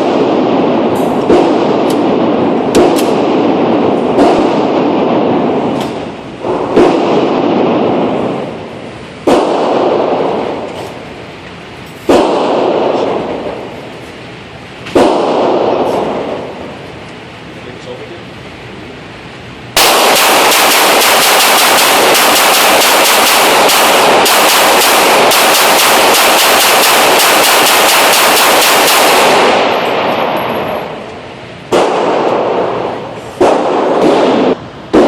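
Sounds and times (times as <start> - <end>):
pistol firing rapid shots: 0.0 - 5.8, 6.4 - 8.1, 9.2 - 10.5, 12.0 - 13.4, 14.9 - 16.5, 19.8 - 31.1, 31.7 - 35.0.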